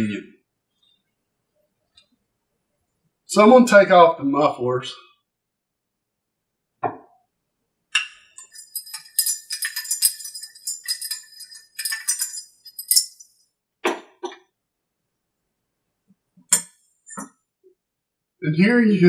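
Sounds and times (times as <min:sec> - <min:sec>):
metal parts and tools clinking: 0:08.4 - 0:13.4.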